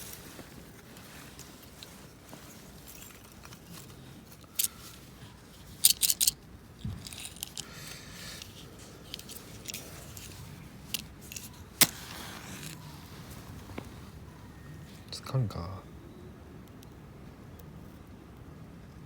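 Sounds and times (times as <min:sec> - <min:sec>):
soft rustling: 0:00.0 - 0:15.2
metallic gear clinking: 0:05.8 - 0:06.4.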